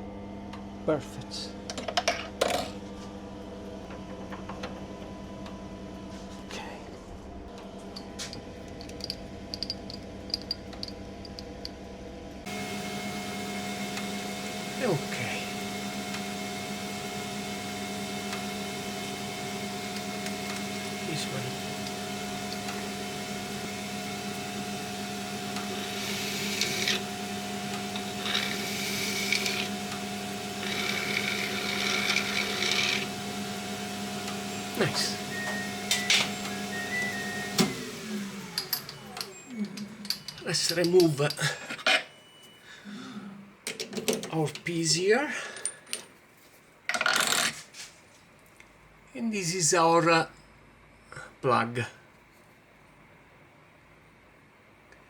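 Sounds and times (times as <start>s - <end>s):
steady machine hum: 0.0s - 43.6s
motor switching on: 12.4s - 40.8s
file rasping against metal: 25.8s - 27.0s, 27.9s - 29.7s, 30.6s - 33.1s.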